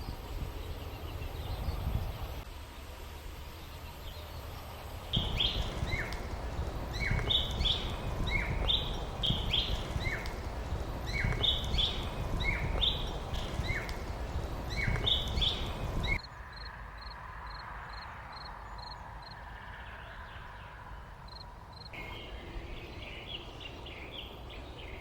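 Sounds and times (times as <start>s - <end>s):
songbird chirping: 0.0s - 25.0s
steady low rumble: 4.5s - 18.0s.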